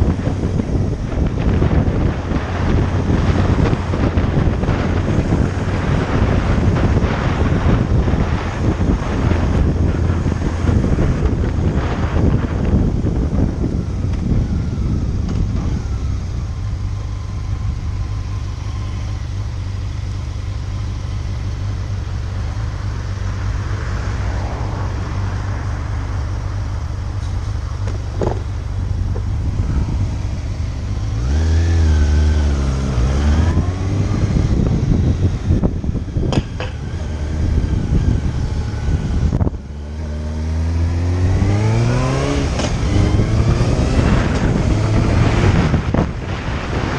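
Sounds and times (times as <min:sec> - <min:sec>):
motorcycle engine running: 0:00.0 - 0:46.9
wind noise on microphone: 0:00.0 - 0:46.9.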